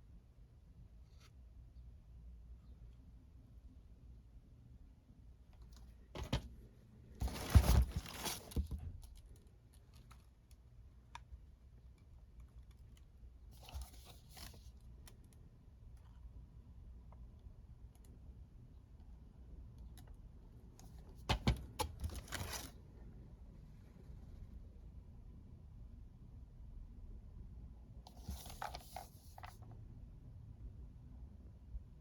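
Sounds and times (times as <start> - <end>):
plastic cases clacking: 6.2 - 6.6, 7.2 - 9.3, 21.2 - 22.7
packaging rustling: 7.2 - 10.2.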